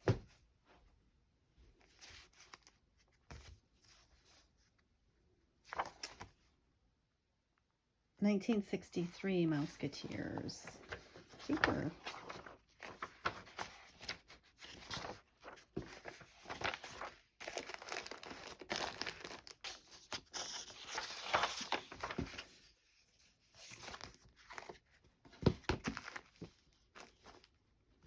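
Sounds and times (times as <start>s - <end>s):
paper rustling and crinkling: 1.8s - 4.6s, 5.6s - 6.4s, 9.5s - 27.6s.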